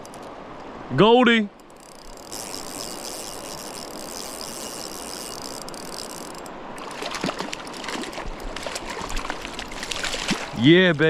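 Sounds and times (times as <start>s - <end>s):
river water running: 0.0s - 11.0s
fish splashing: 1.9s - 10.6s.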